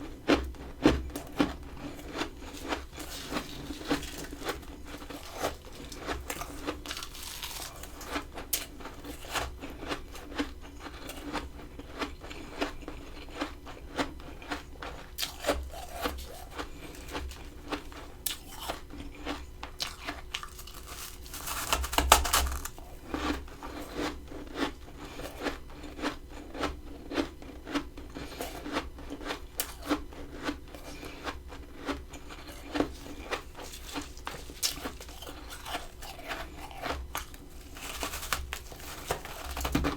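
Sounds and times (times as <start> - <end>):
chewing crunchy frost: 0.0 - 39.9.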